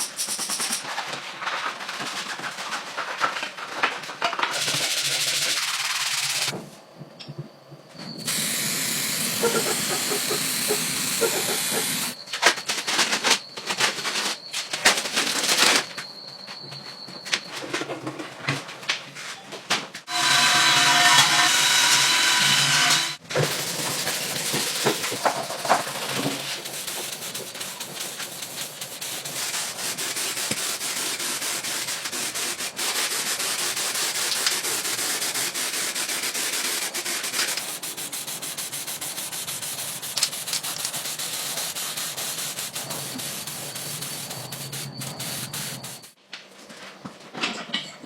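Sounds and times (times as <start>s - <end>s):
abrasive sanding: 4.6s - 6.5s, 8.2s - 12.2s, 20.1s - 46.2s.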